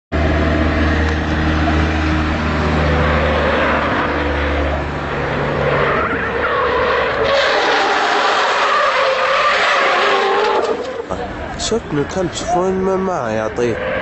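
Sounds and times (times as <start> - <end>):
car engine droning: 0.1 - 14.0
tyres squealing: 5.5 - 14.0.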